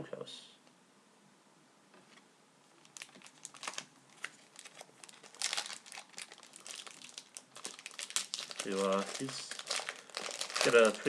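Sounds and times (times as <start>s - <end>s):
wrapper crinkling: 2.8s - 11.0s.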